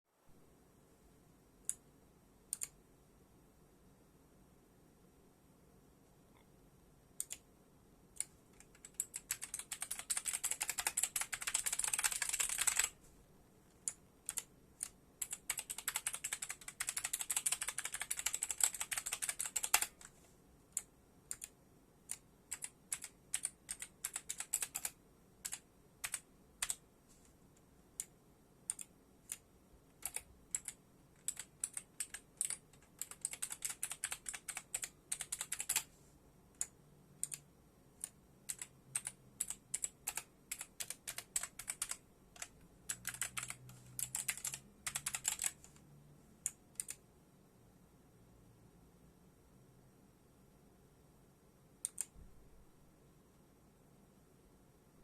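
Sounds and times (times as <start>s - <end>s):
keyboard keystrokes: 8.2s - 12.9s, 13.9s - 20.1s, 38.0s - 45.6s.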